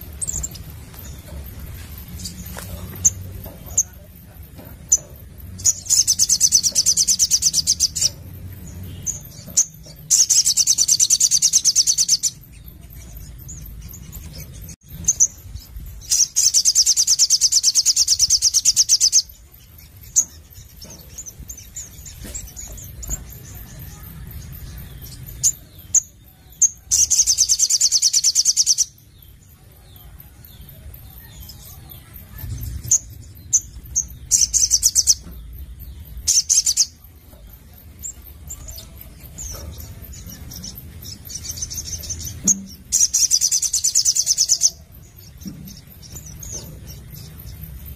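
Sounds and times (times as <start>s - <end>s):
soft bird chirps: 0.0s - 47.9s.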